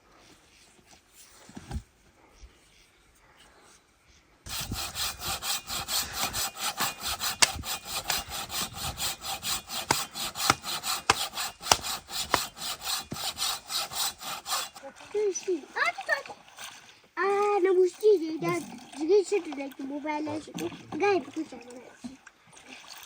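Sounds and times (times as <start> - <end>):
rhythmic scraping strokes: 4.5 - 14.8.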